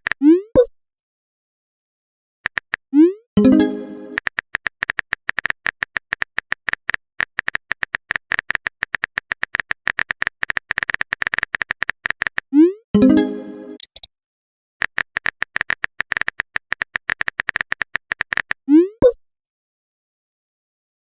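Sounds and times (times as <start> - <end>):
keyboard typing clicks: 2.5 - 2.8, 3.4 - 12.5, 13.7 - 14.1, 14.8 - 18.6
notification bloop and chime: 3.4 - 4.2, 13.0 - 13.8.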